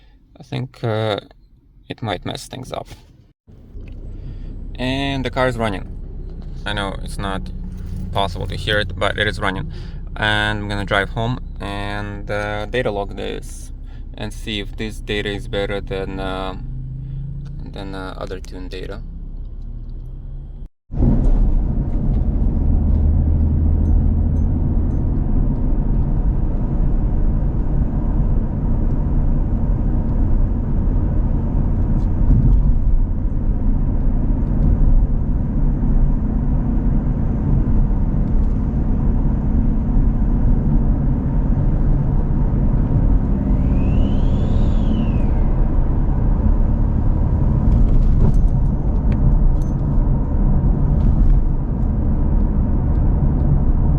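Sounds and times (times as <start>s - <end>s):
car engine and road rumble: 0.0s - 53.9s
whistle rising and falling: 43.4s - 45.9s.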